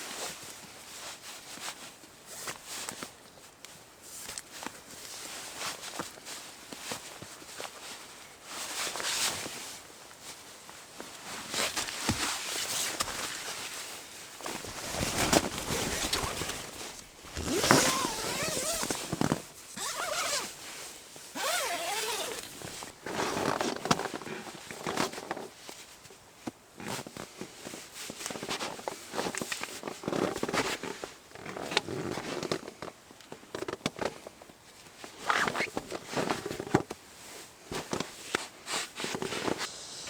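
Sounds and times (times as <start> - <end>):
gear rustling and scraping: 14.4 - 22.9
zipper pull: 14.8 - 20.6, 21.4 - 22.9.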